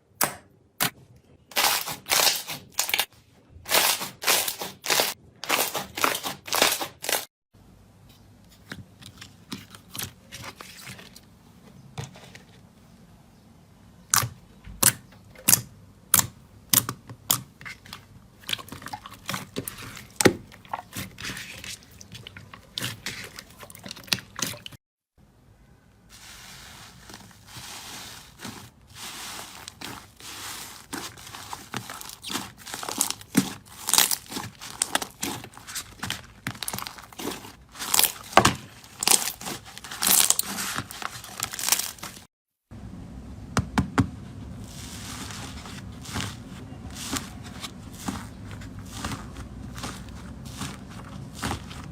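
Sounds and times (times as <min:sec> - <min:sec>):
slime popping and crackling: 0:01.6 - 0:03.1, 0:29.6 - 0:42.2.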